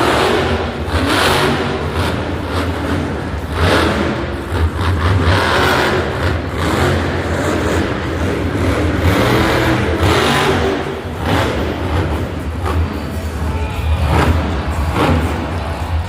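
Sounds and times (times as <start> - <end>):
truck engine revving loudly: 0.0 - 16.0.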